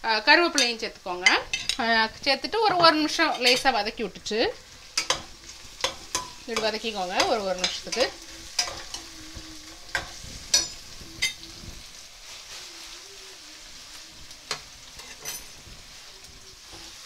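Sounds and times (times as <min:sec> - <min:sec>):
onions sizzling in oil: 0:00.0 - 0:17.0
metal spoon clinking on pan: 0:00.6 - 0:01.8, 0:02.6 - 0:03.8, 0:05.0 - 0:09.1, 0:09.9 - 0:11.5, 0:14.5 - 0:15.6.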